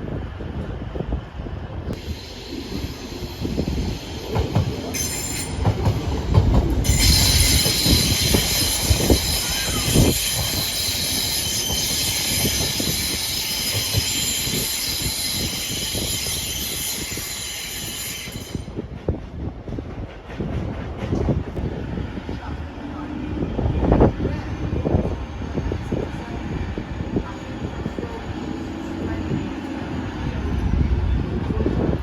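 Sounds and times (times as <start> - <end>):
train wheels squealing on rails: 2.0 - 19.2.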